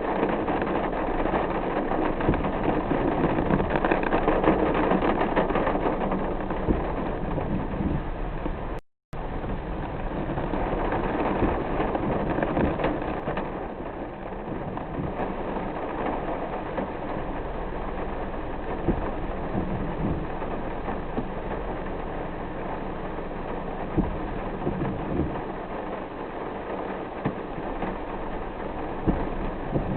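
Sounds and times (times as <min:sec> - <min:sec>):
car engine and tyre noise: 0:00.0 - 0:29.9
rain pattering on a car: 0:00.0 - 0:29.9.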